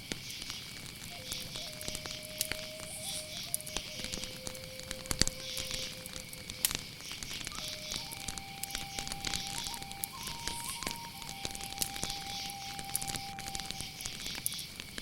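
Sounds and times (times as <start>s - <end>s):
crickets chirring: 0.0s - 15.0s
wood fire crackling: 0.0s - 15.0s
soft background music: 7.6s - 14.2s.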